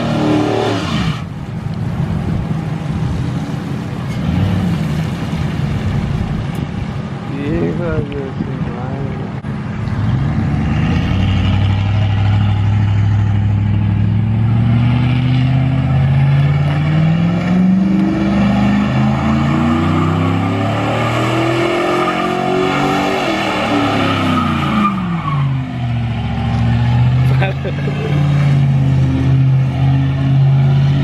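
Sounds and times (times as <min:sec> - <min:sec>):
pickup truck engine revving: 0:10.0 - 0:31.0.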